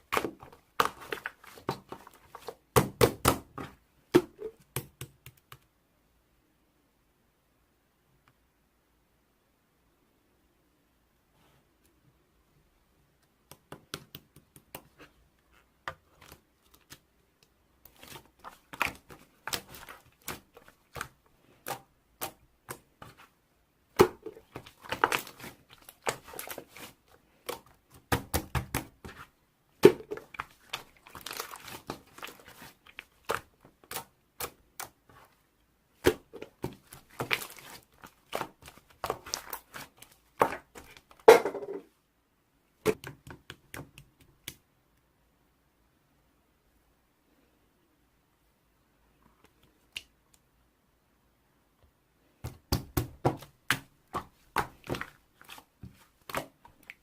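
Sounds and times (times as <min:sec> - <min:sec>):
slime squished by hand: 0:23.9 - 0:35.2, 0:36.0 - 0:41.2.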